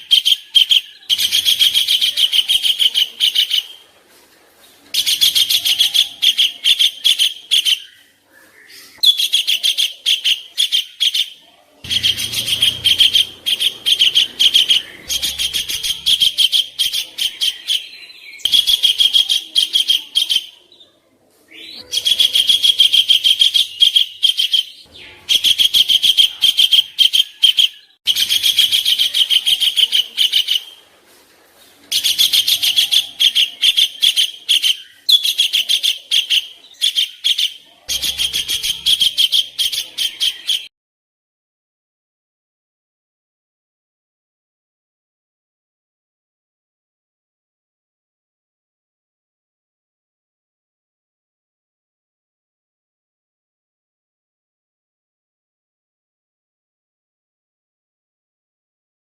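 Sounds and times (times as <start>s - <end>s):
songbird harsh high chirps: 5.0s - 20.6s.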